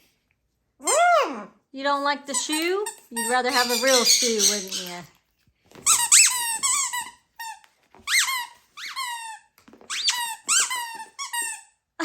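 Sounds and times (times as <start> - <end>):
squeaky toy squeaking: 0.8 - 1.6, 2.3 - 5.1, 5.8 - 11.8.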